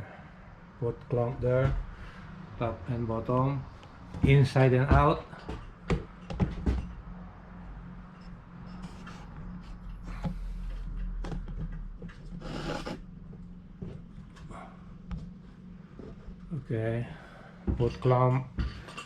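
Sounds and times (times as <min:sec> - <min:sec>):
clamps scraping on window frame: 0:12.3 - 0:13.0.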